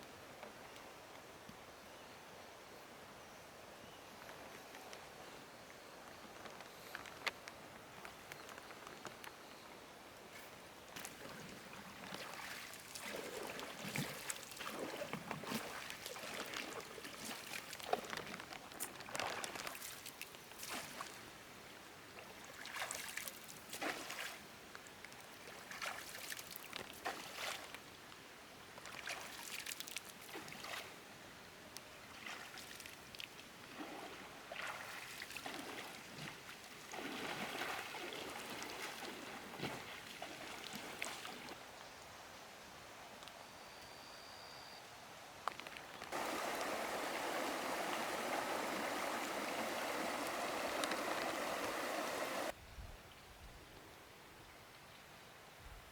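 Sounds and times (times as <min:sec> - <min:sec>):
water splashing and sloshing: 0:11.0 - 0:21.2, 0:22.4 - 0:24.4, 0:25.4 - 0:27.8, 0:28.8 - 0:30.9, 0:32.1 - 0:41.6, 0:45.6 - 0:52.6.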